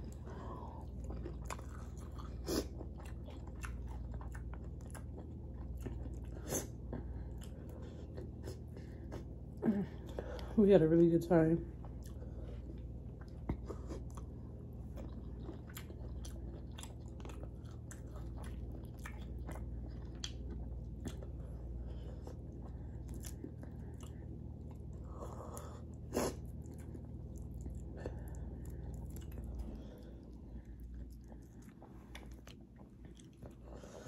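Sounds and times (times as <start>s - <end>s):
person chewing food: 0.0s - 10.6s, 11.7s - 34.0s
low hum: 0.0s - 34.0s.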